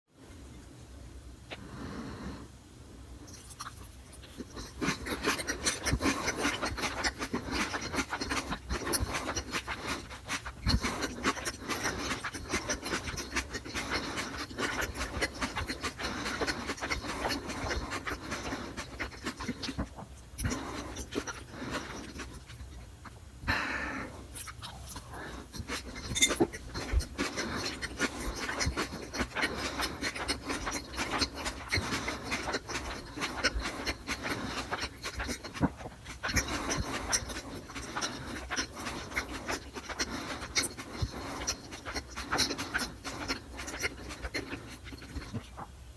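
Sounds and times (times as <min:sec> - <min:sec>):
breathing: 0:01.5 - 0:02.6, 0:23.4 - 0:24.3
chewing smacks: 0:03.2 - 0:23.6, 0:24.3 - 0:45.8
wet mouth clicks: 0:03.3 - 0:22.9, 0:24.3 - 0:45.7.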